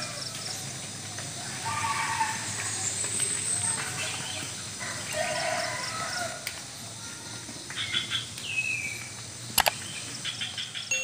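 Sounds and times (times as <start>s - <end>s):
small birds chirping: 6.7s - 11.0s
sharp clicks: 9.6s - 9.8s.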